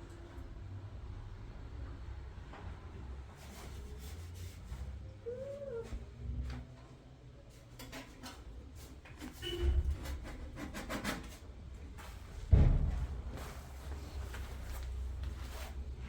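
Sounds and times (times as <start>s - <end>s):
loud thump: 12.5s - 13.4s.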